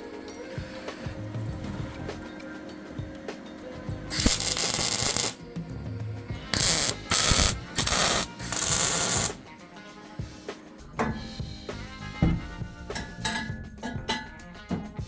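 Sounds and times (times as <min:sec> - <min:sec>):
welder crackling and hissing: 0:00.0 - 0:02.2, 0:04.1 - 0:09.6
background music: 0:00.0 - 0:15.0.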